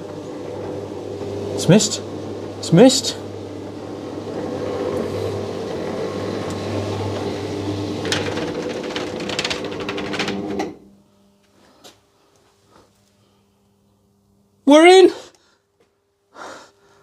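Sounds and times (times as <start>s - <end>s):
rolling slats clattering: 0.0s - 10.7s
garage door motor hum: 0.0s - 14.8s.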